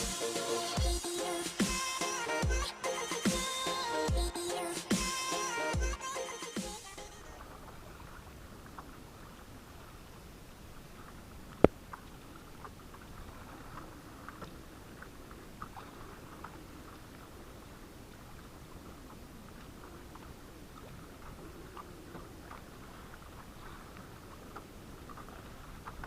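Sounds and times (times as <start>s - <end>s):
faint water sounds: 0.0s - 26.0s
water drips and ticks: 7.4s - 26.0s.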